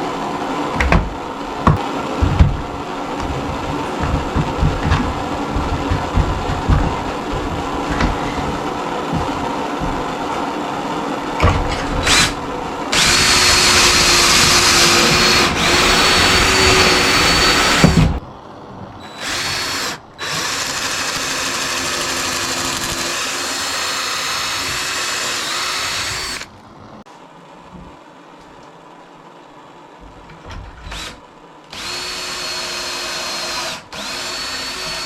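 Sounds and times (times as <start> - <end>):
power drill whining: 11.7 - 18.2, 18.9 - 26.5, 30.9 - 35.0.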